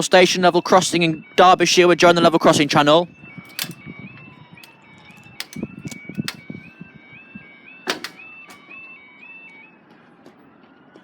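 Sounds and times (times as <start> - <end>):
crossing alarm two-tone warble: 0.0 - 11.0
sharp clicks: 3.5 - 3.8, 4.6 - 6.5.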